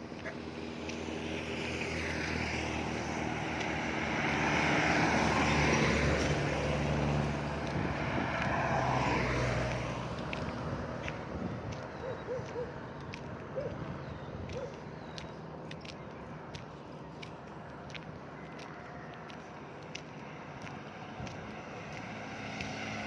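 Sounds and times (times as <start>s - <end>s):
vehicle engine passing by: 0.3s - 11.8s, 20.1s - 23.0s.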